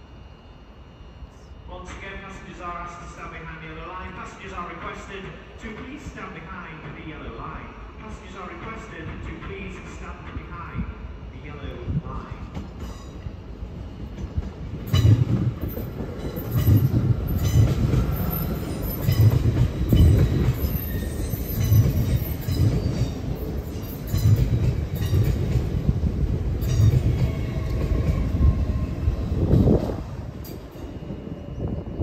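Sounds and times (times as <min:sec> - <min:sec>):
train rumble: 0:00.8 - 0:32.0
train wheels knocking on rail joint: 0:14.0 - 0:28.4.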